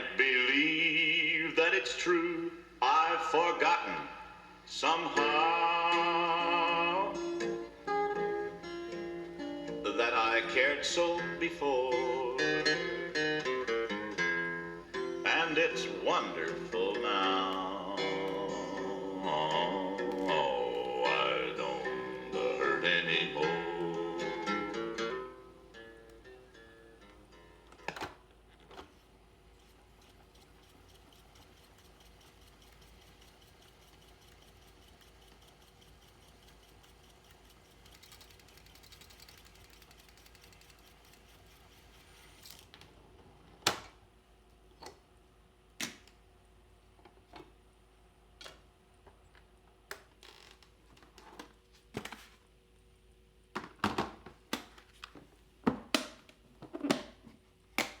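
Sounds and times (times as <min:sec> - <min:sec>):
tape hiss and hum: 0:00.0 - 0:55.6
mechanical clicks and clunks: 0:27.7 - 0:42.8
fine fast ticking: 0:29.5 - 0:42.4.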